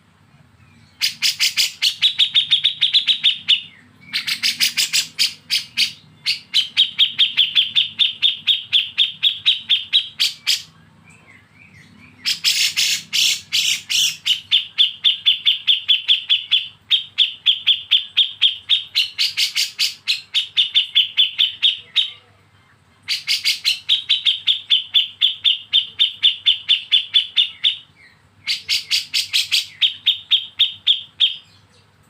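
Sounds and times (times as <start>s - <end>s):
bird giving rapid sharp chirps: 1.0s - 10.7s, 12.2s - 22.0s.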